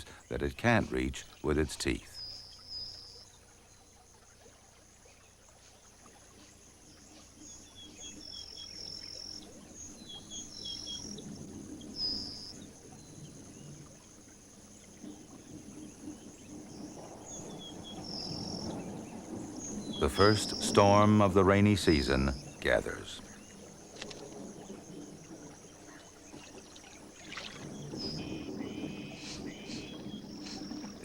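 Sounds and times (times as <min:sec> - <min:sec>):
high insect hiss: 0:01.1 - 0:31.0
water sloshing and splashing: 0:02.2 - 0:31.0
high chirping calls: 0:19.5 - 0:23.6, 0:27.8 - 0:31.0.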